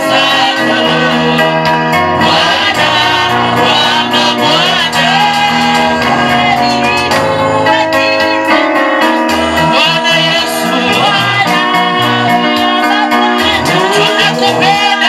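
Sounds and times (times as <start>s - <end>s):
bass line: 0.0s - 8.4s, 13.3s - 14.8s
gospel singing: 0.0s - 15.0s
keyboard: 0.0s - 15.0s.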